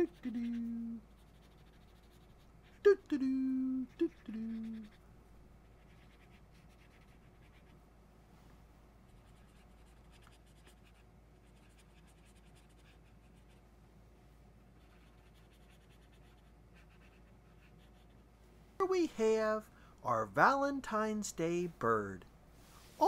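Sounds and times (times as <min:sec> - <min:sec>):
marker scratching on paper: 0:00.0 - 0:02.4, 0:05.7 - 0:07.8, 0:09.1 - 0:13.6, 0:14.8 - 0:18.2.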